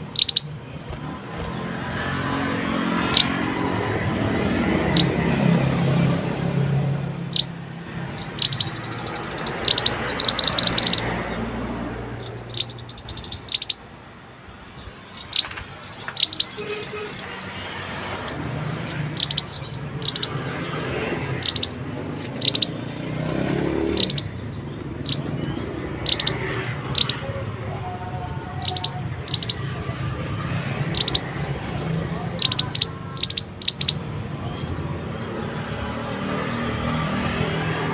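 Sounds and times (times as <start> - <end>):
songbird chirps and trills: 0.0 - 1.5, 3.0 - 3.4, 4.9 - 5.2, 7.2 - 11.5, 12.1 - 35.8.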